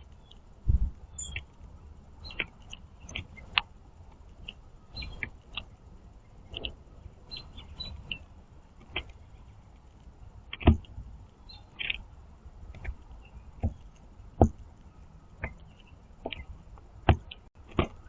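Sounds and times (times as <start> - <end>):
birds pecking on feeder tray: 0.0 - 18.0
squeaky jay call: 1.2 - 1.4.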